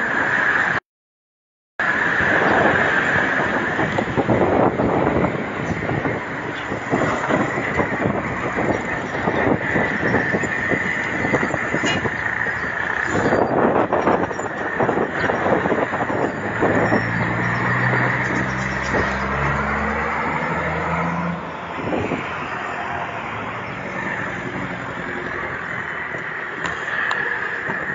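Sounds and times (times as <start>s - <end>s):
road and wind noise: 0.0s - 0.8s, 1.8s - 27.9s
vehicle engine droning past: 16.5s - 21.4s.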